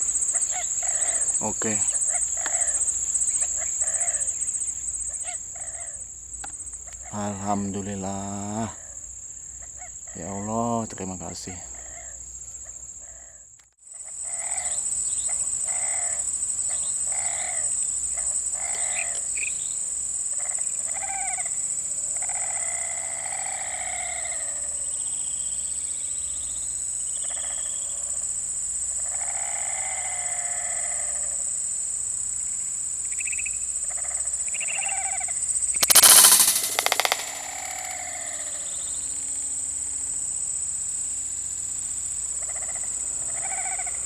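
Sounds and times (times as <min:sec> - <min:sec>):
high-pitched insect drone: 0:35.8 - 0:38.9.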